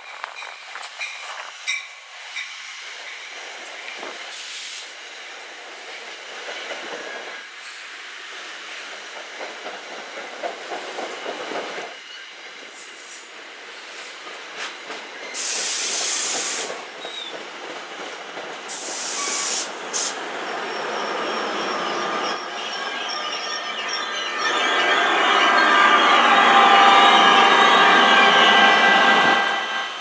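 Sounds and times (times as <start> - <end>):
electric locomotive passing: 0.1 - 30.0
hissing bursts of air: 15.4 - 16.8, 18.7 - 20.2.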